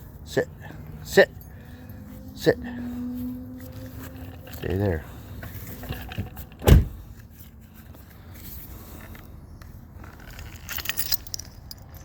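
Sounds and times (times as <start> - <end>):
small metal parts jingling: 10.0 - 12.0.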